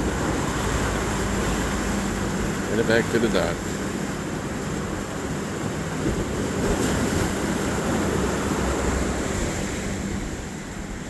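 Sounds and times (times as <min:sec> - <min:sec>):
boat engine drone: 0:00.0 - 0:11.0
water lapping: 0:00.0 - 0:11.0.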